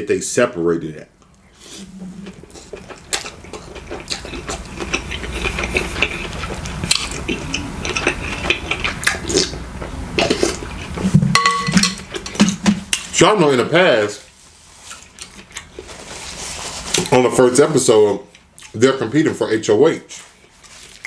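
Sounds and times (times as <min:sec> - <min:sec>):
wet chewing and slurping: 0:01.6 - 0:11.2, 0:14.3 - 0:17.1, 0:20.1 - 0:21.0
utensils clinking against a dish: 0:11.3 - 0:13.1.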